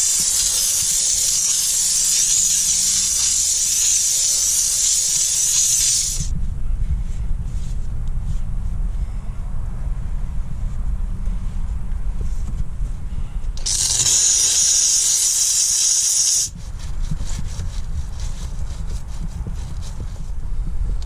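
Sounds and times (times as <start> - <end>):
steam jet hissing from nozzle: 0.0 - 6.3, 13.6 - 16.5
low rumble: 6.3 - 13.6.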